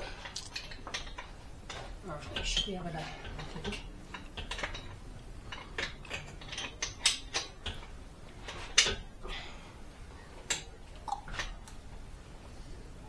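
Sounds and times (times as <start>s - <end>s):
metal tools clicking and clanking: 0.0s - 9.1s.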